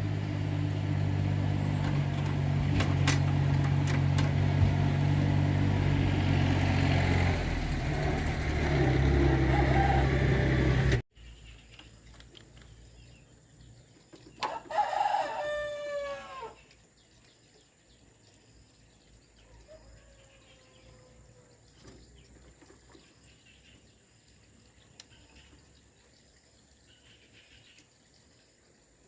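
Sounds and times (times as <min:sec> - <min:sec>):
faint drawn-out rooster call: 0:09.2 - 0:10.9, 0:14.4 - 0:16.6, 0:19.4 - 0:21.5
rooster crowing: 0:09.3 - 0:10.8, 0:14.4 - 0:16.6, 0:19.6 - 0:21.4.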